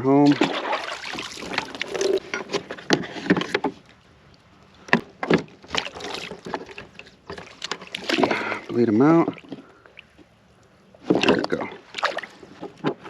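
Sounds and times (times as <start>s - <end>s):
knocks and taps on kayak: 4.9s - 5.8s.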